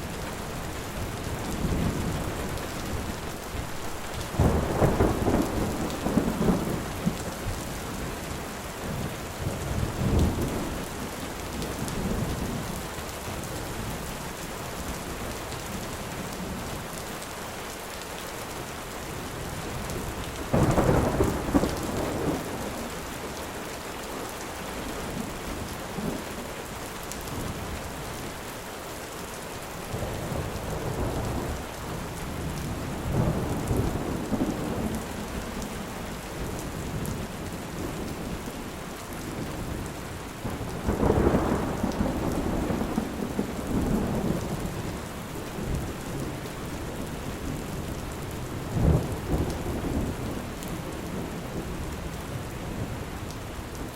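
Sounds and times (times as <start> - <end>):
heavy rain: 0.0 - 53.9
rolling thunder: 0.1 - 7.6.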